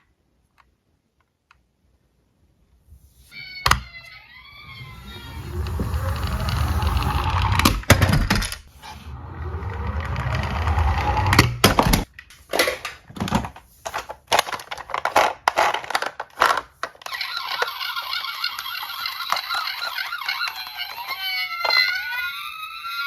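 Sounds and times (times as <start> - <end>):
toy cars rolling down slope: 3.4 - 23.0
toy cars clacking together: 9.8 - 23.0.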